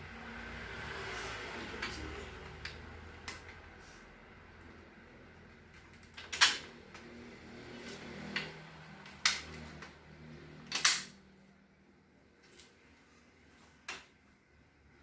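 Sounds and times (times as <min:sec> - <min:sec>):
parts clicking and knocking: 0:01.7 - 0:03.7, 0:05.7 - 0:07.2, 0:07.8 - 0:11.3.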